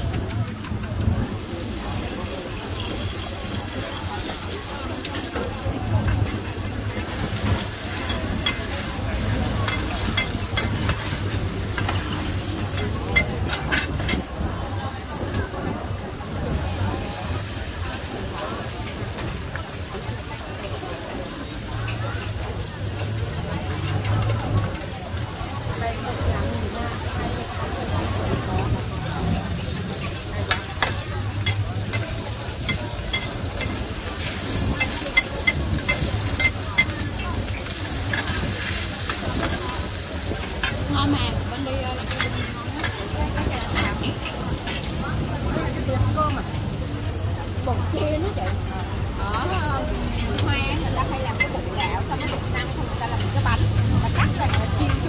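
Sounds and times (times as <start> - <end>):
batter sizzling in hot oil: 0.0 - 55.0
metal spatulas scraping a pan: 7.0 - 14.2, 30.0 - 40.9, 41.9 - 45.0.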